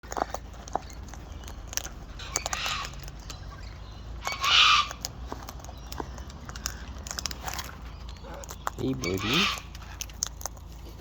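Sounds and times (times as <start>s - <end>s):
cockatoo screeching: 2.2s - 3.1s, 4.2s - 5.1s, 8.9s - 9.8s.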